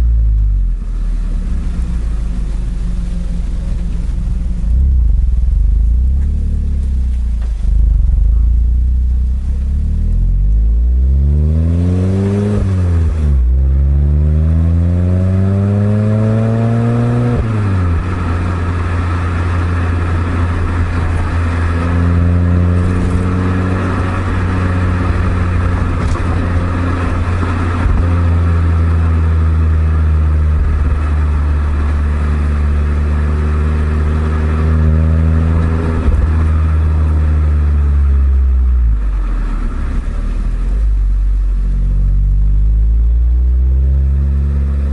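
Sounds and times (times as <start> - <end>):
car exhaust revving through gear changes: 0.0 - 44.9.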